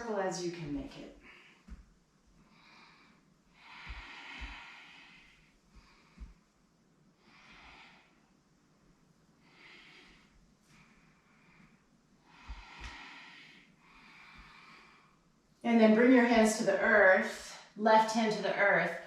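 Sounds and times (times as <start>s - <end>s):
woman breathing: 1.2s - 8.6s, 9.2s - 15.4s.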